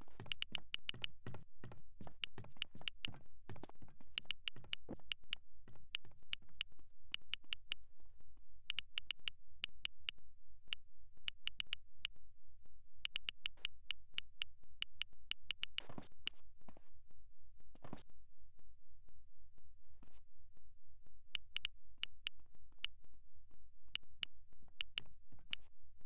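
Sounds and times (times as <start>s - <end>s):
sharp clicks: 0.1s - 1.3s, 2.1s - 3.2s, 4.1s - 7.8s, 8.7s - 12.1s, 13.0s - 15.9s, 21.4s - 23.0s, 24.0s - 25.6s.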